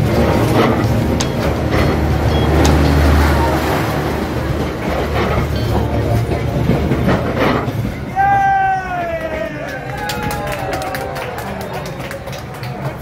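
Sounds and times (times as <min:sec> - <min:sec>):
train wheels rumbling on rail: 0:00.0 - 0:10.8.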